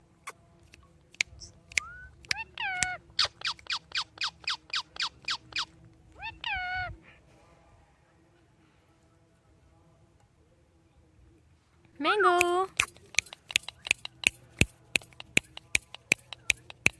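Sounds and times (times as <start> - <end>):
parrot clicks: 0.7 - 3.6, 12.4 - 16.9
parrot calling: 2.3 - 6.9.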